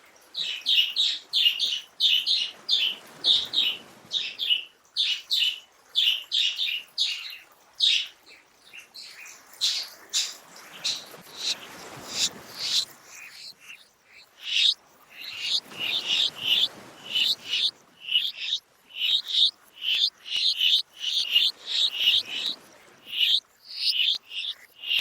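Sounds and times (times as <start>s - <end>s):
bird chirping: 8.7s - 25.0s.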